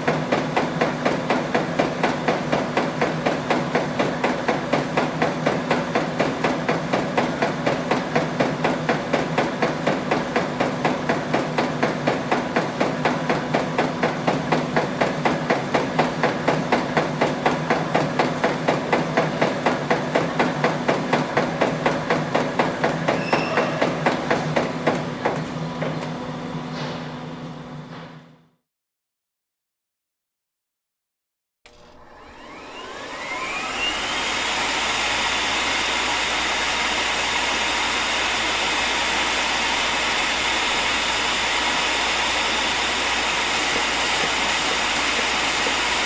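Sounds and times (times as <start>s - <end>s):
motor hum: 31.7s - 46.0s.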